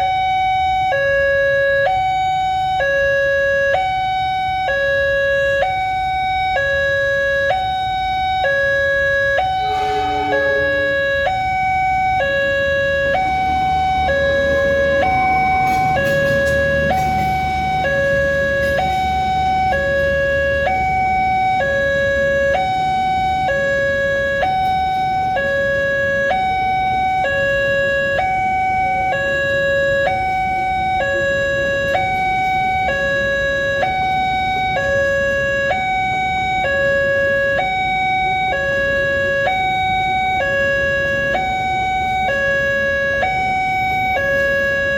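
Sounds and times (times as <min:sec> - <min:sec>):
level crossing two-tone alarm: 0:00.0 - 0:44.9
low engine rumble: 0:09.5 - 0:23.3.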